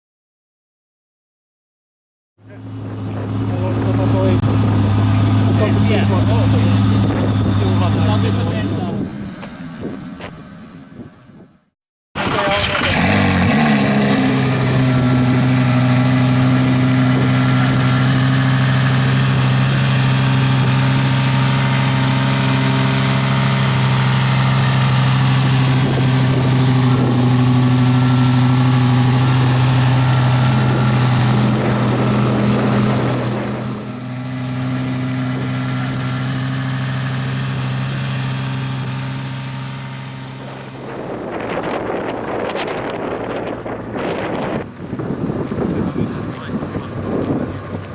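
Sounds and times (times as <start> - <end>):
sports car engine idling: 2.4 - 10.8, 12.2 - 47.9
wind buffeting microphone: 4.5 - 11.6, 25.3 - 36.1, 40.4 - 47.9.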